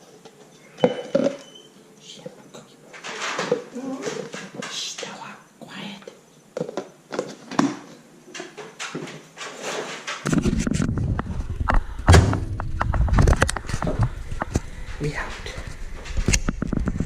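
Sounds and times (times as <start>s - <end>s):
thumps: 9.8s - 14.6s
steady low rumble: 10.8s - 16.5s
door clicks and knocks: 12.1s - 13.0s.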